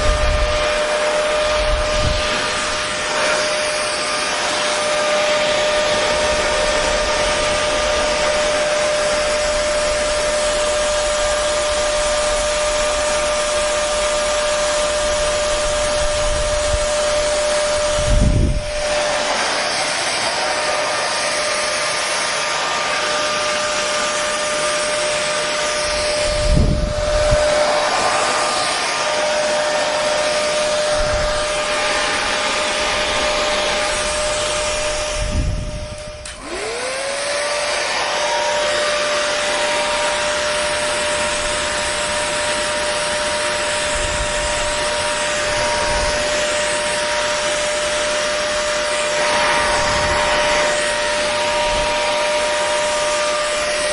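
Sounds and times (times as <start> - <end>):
hair dryer running: 0.0 - 53.9.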